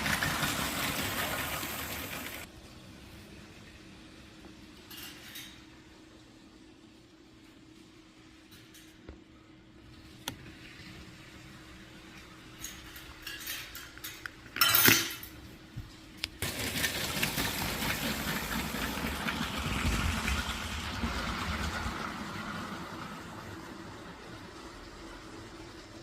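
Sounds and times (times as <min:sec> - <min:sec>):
toy train rattling over plastic track: 0:16.4 - 0:22.1.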